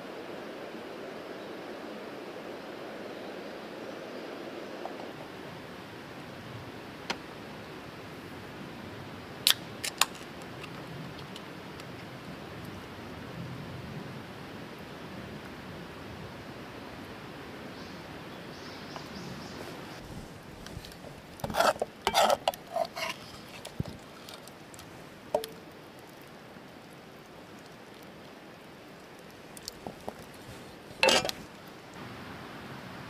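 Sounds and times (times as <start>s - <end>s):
outdoor hiss: 0.0s - 33.0s
metal cookware clinking: 31.0s - 31.4s.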